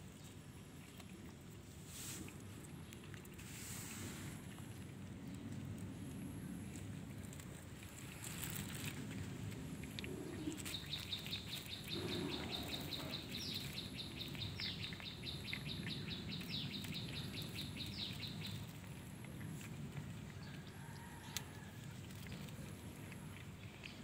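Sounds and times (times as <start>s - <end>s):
low background noise: 0.0s - 24.0s
bird chirping: 10.2s - 18.7s.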